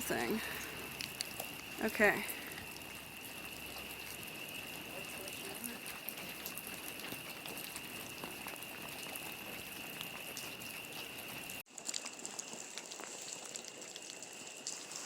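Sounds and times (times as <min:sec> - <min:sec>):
faint crackling ticks: 0:00.0 - 0:15.0.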